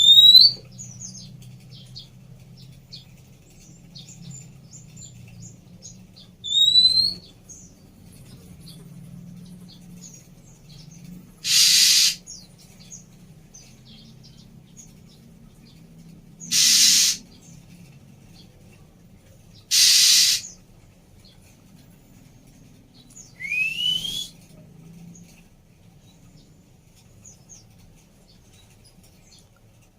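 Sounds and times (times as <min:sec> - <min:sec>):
bird rising whistle: 0:00.0 - 0:00.6, 0:06.5 - 0:07.2, 0:11.4 - 0:12.2, 0:16.5 - 0:17.2, 0:19.7 - 0:20.5, 0:23.4 - 0:24.4
bird harsh hissing rasps: 0:11.4 - 0:12.4, 0:16.4 - 0:17.3, 0:19.7 - 0:20.6.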